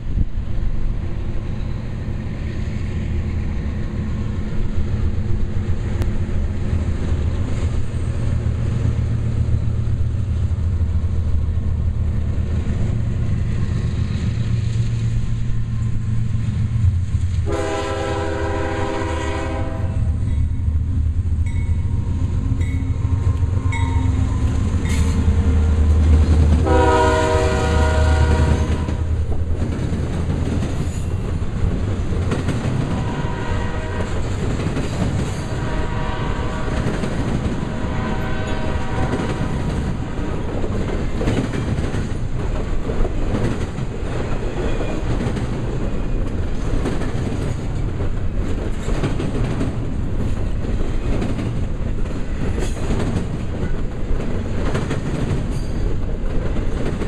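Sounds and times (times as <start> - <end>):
locomotive engine drone: 0.0 - 46.8
wheels clicking over rail joints: 28.3 - 33.1, 33.9 - 35.6, 39.0 - 57.0.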